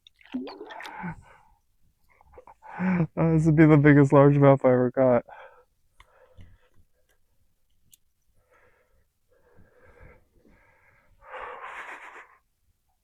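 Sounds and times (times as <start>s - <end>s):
person breathing heavily: 8.4s - 12.4s.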